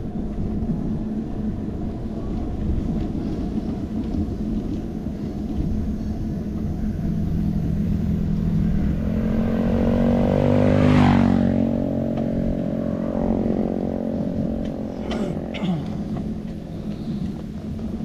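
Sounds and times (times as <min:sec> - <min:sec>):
wind and road noise rumble: 0:00.0 - 0:18.0
vehicle driving past: 0:05.6 - 0:18.0.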